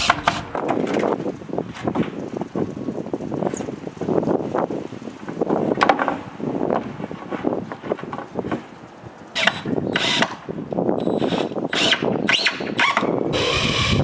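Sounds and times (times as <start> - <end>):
power drill driving screws: 9.4 - 10.3, 11.0 - 14.0.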